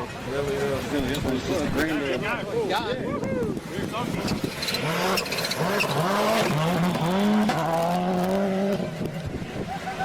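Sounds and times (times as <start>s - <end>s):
rally car engine revving: 4.0s - 9.9s.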